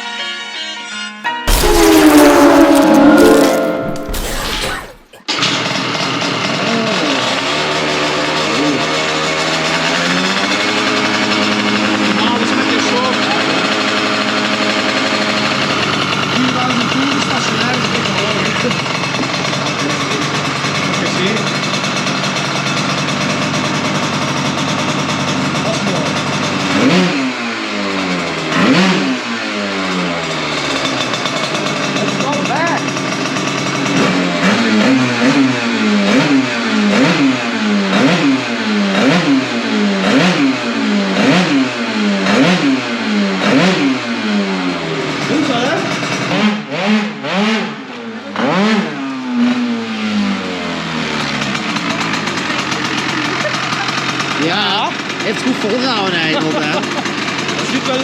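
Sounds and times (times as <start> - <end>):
two-stroke scooter engine revving: 5.2 - 58.0
scooter engine passing by: 49.3 - 58.0.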